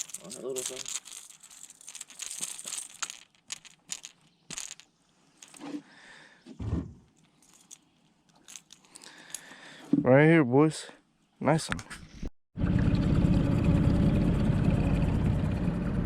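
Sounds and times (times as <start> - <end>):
fishing tackle clicking and rattling: 0.0 - 5.6, 7.1 - 9.6
dull thump: 6.5 - 7.0.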